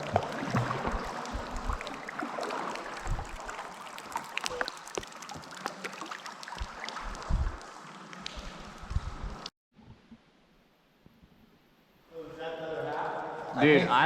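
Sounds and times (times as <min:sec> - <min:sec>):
paddle blades dipping and dripping: 0:00.0 - 0:09.5
small water splashes: 0:00.0 - 0:09.5.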